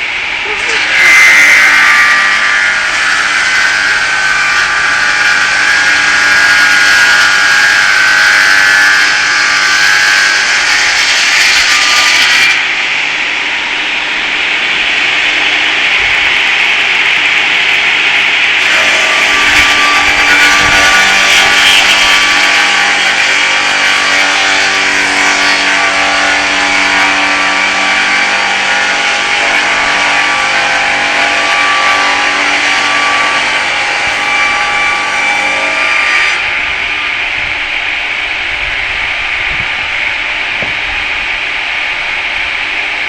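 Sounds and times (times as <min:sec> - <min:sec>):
saw blade whining: 0:00.0 - 0:43.0
saw rasping through log: 0:00.4 - 0:12.7, 0:16.4 - 0:36.6.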